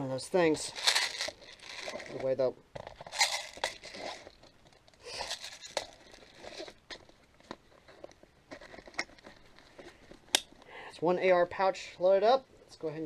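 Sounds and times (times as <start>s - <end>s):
rustling of gear pouch: 0.5s - 10.6s.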